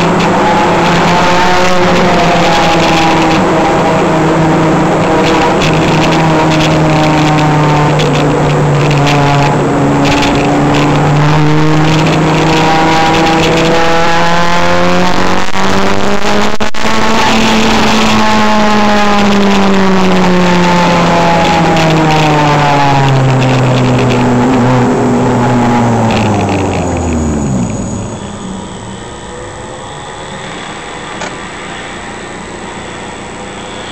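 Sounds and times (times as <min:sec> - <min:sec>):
car engine running hard: 0:00.0 - 0:33.9
road and wind noise: 0:00.0 - 0:33.9.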